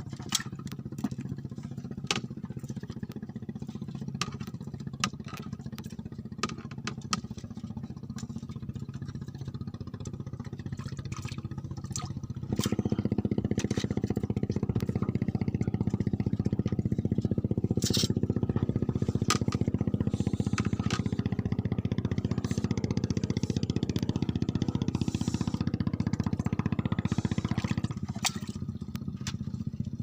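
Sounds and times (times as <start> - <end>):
small engine running: 0.0 - 30.0
sharp clicks and knocks: 13.5 - 21.4.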